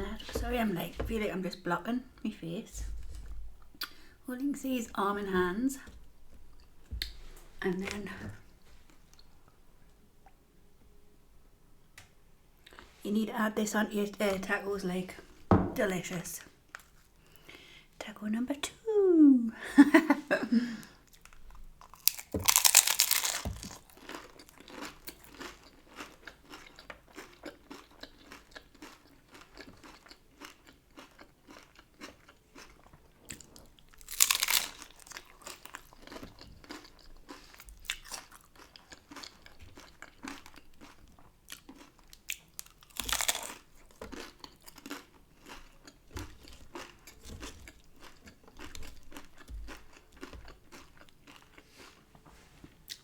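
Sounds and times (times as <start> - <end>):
crunching taco bites: 21.1 - 52.0
crunchy chewing: 21.1 - 52.1.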